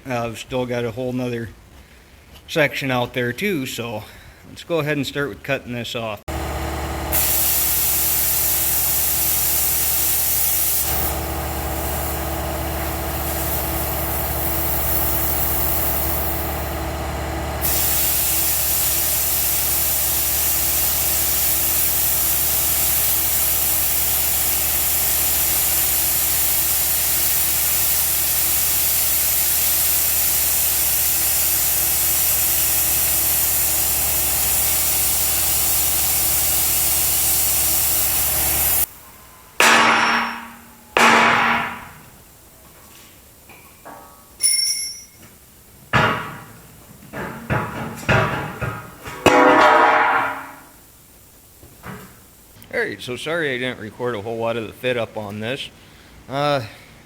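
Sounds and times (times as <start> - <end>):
cutting torch hissing: 6.3 - 38.9
electrical hum: 6.3 - 38.9.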